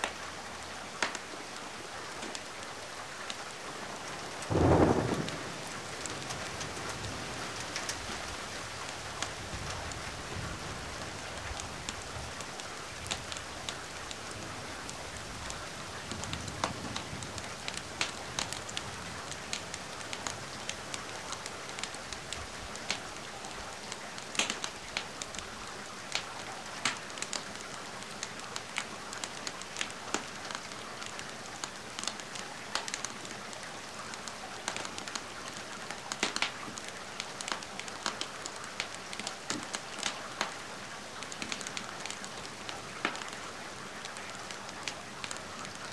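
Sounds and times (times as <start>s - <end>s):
rain hiss: 0.0s - 45.9s
wood fire crackling and popping: 1.0s - 1.3s, 4.3s - 10.1s, 11.2s - 25.5s, 26.1s - 30.8s, 32.0s - 33.2s, 34.1s - 40.6s, 41.2s - 43.4s.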